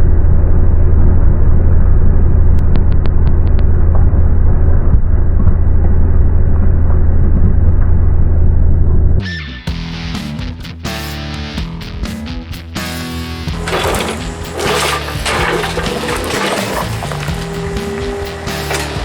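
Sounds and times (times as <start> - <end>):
excavator diesel engine running: 13.5 - 19.0.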